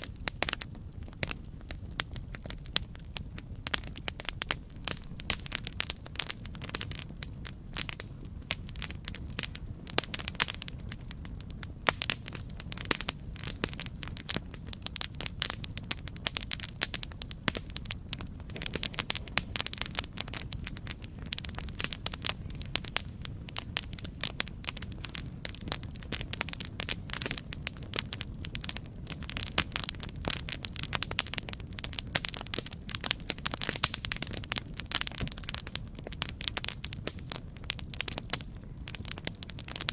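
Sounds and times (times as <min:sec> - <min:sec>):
campfire crackling and popping: 0:00.0 - 0:39.9
low rumble of flame: 0:00.0 - 0:39.9.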